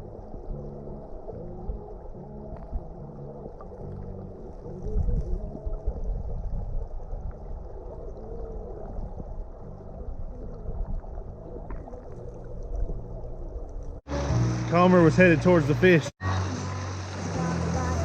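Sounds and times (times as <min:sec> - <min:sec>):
creek water rumbling: 0:00.0 - 0:18.0
wind buffeting microphone: 0:04.6 - 0:14.0.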